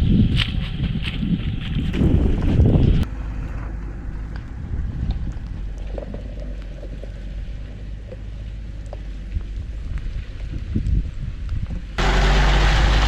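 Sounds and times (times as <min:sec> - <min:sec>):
vehicle engine idling: 0:03.0 - 0:10.6, 0:11.9 - 0:13.0.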